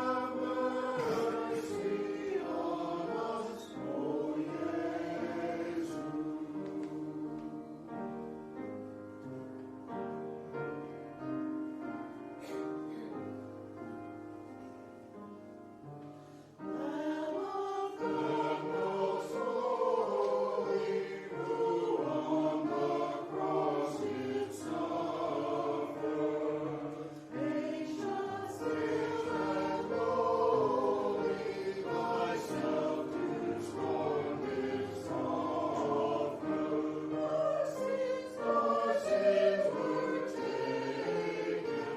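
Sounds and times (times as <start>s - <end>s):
choir singing church music: 0.0s - 41.9s.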